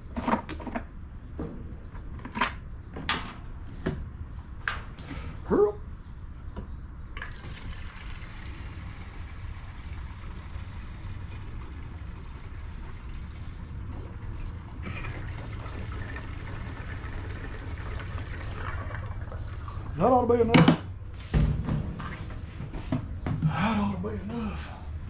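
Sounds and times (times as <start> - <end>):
fuel pouring into a tank: 7.2 - 20.0.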